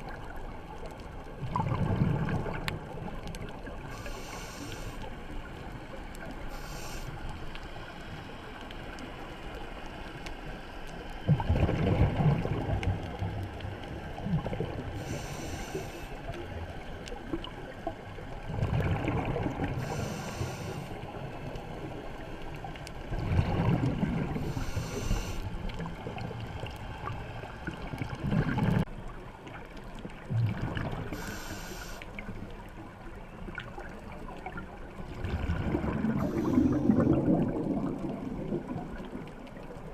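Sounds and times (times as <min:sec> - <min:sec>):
bubbling rumble on exhale: 0:01.3 - 0:04.0, 0:11.2 - 0:16.5, 0:17.2 - 0:20.9, 0:23.0 - 0:28.9, 0:30.0 - 0:32.3, 0:33.5 - 0:39.9
regulator hiss on inhale: 0:03.8 - 0:05.3, 0:06.4 - 0:08.3, 0:14.9 - 0:16.4, 0:19.7 - 0:21.2, 0:24.4 - 0:25.6, 0:31.1 - 0:32.2, 0:36.2 - 0:37.1.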